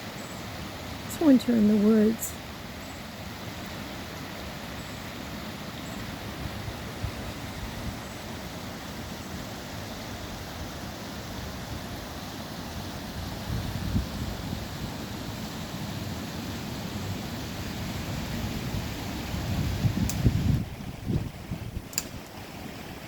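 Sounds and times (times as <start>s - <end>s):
wind blowing: 5.9s - 23.0s.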